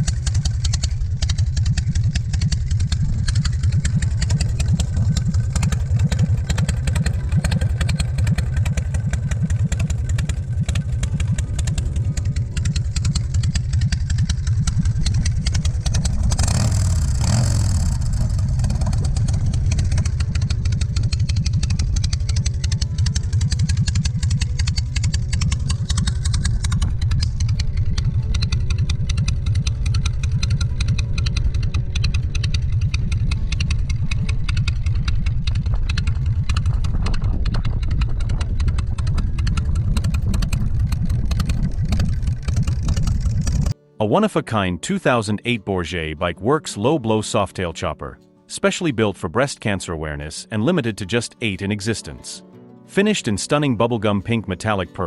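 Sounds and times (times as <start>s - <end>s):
motorcycle engine idling and revving: 0.0s - 43.8s.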